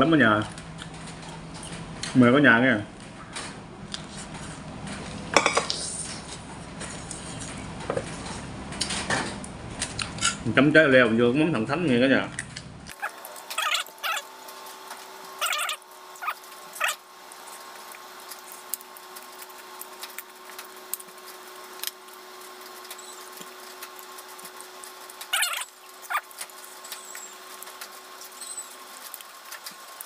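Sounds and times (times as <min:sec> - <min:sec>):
food crunching: 0:12.4 - 0:30.0.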